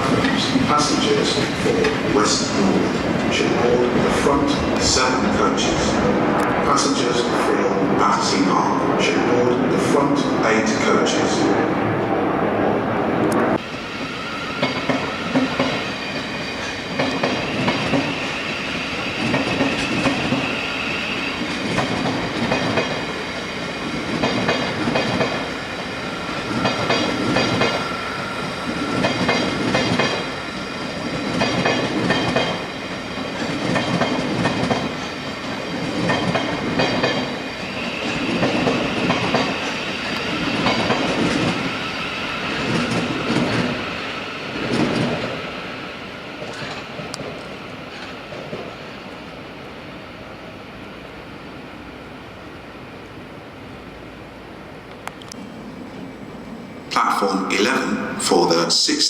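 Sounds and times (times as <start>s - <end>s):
train wheels clacking over rail joints: 14.6s - 18.2s, 21.5s - 23.1s, 24.0s - 25.5s, 26.4s - 28.0s, 28.7s - 30.3s, 31.1s - 35.2s, 35.8s - 37.4s, 38.0s - 41.7s.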